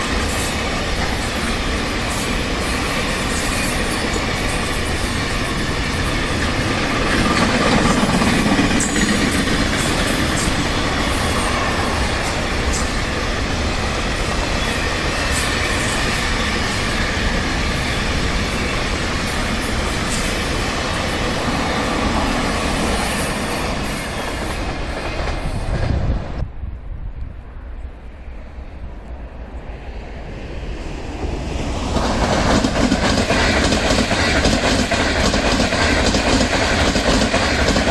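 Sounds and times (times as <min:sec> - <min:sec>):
train rumbling past on rails: 0:00.0 - 0:37.9
wheels clicking over track: 0:03.3 - 0:11.7.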